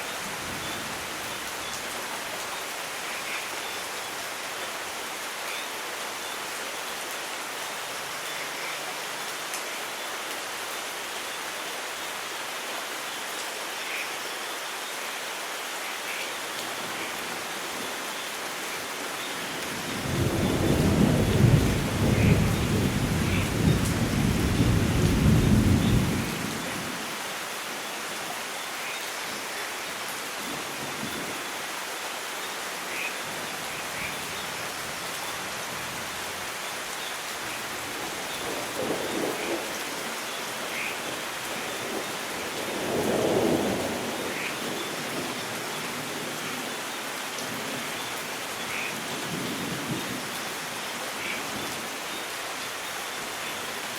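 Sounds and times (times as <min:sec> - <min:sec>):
steady rain falling: 0:00.0 - 0:53.9
thunder rumbling: 0:19.9 - 0:26.7.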